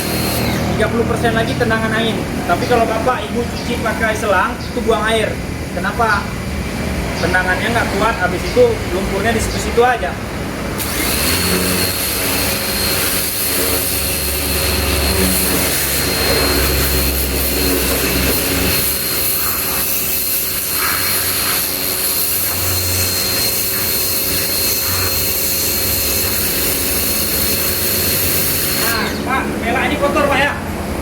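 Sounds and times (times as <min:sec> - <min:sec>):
pressure washer water jet hissing: 0:00.0 - 0:02.0, 0:10.3 - 0:30.2
motor hum: 0:10.3 - 0:29.7.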